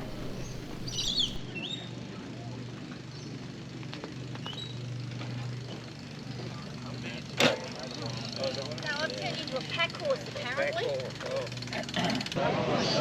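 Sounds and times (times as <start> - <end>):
birds chirping: 0.0 - 1.5
low outdoor hum: 0.0 - 1.5.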